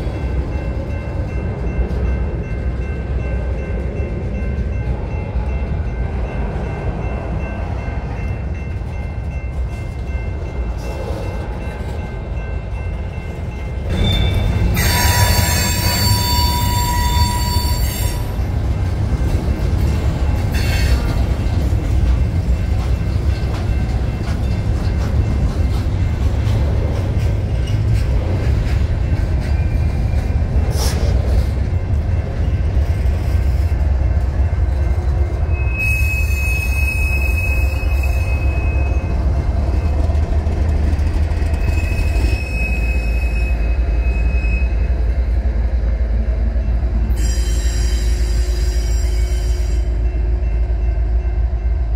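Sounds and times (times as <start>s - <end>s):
freight train wheels rumbling: 0.0s - 51.9s
high wheel squeal: 13.9s - 18.3s, 35.5s - 39.1s, 41.5s - 44.8s, 47.1s - 49.8s.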